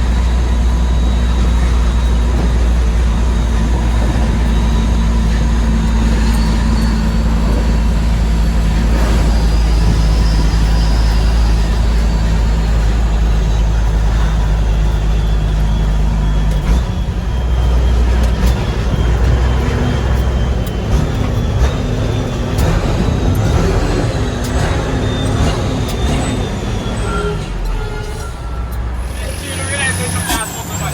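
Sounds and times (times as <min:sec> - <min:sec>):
diesel truck engine droning: 0:00.0 - 0:30.9
faint high whine: 0:26.9 - 0:30.9.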